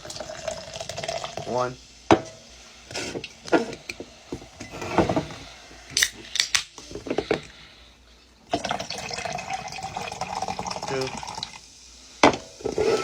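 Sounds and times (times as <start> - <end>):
soda pouring into a glass: 0.0 - 1.8, 8.4 - 13.0.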